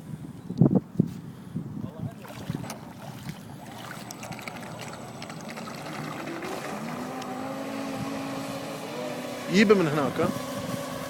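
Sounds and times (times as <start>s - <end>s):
electric boat motor whining: 4.0s - 11.0s.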